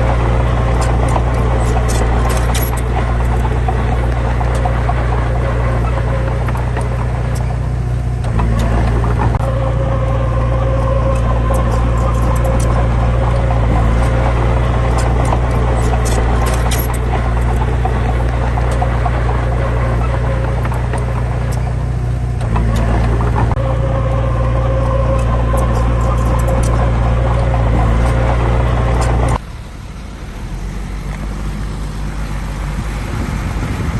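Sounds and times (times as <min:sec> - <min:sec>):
heavy diesel engine running: 0:00.0 - 0:33.9.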